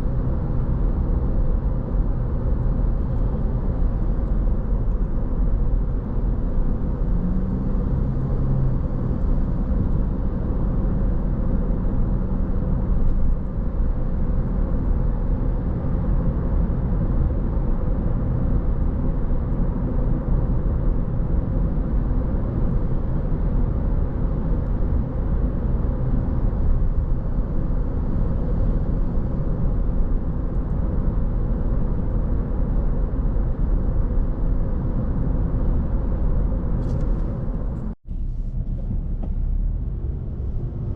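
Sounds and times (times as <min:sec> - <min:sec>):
car tyres and engine rumble: 0:00.0 - 0:40.9.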